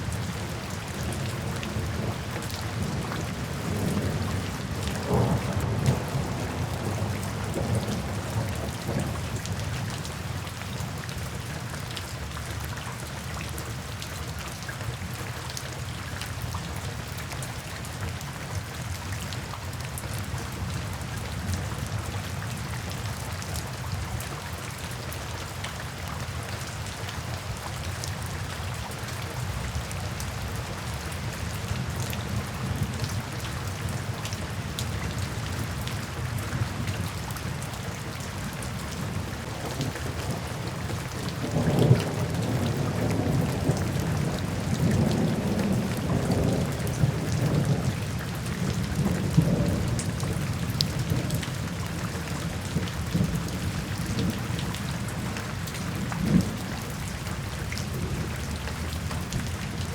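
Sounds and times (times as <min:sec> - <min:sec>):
rain falling into puddles: 0:00.0 - 0:59.9
low roll of thunder: 0:01.1 - 0:09.6.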